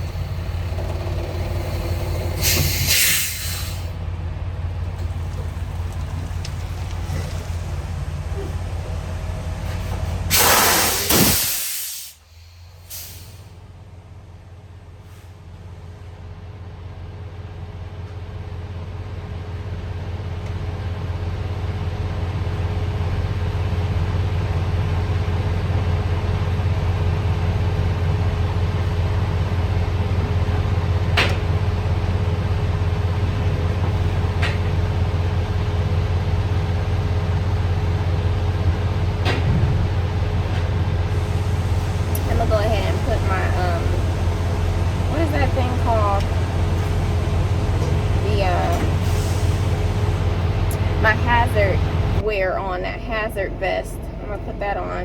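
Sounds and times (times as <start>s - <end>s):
diesel engine idling: 0.0s - 55.0s
air brakes hissing: 1.4s - 4.0s, 9.6s - 13.6s, 41.1s - 51.0s.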